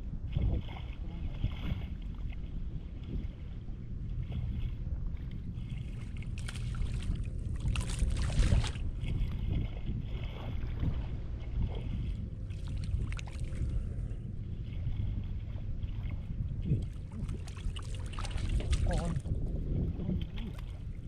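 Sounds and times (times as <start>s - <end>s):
steady low rumble: 0.0s - 21.0s
water splashing and sloshing: 0.0s - 21.0s.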